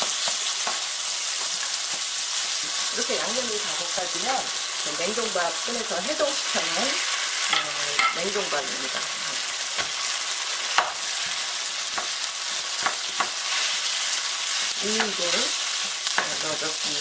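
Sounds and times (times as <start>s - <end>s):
meat sizzling in a frying pan: 0.0s - 17.0s
wooden utensils knocking on pan: 7.5s - 8.3s.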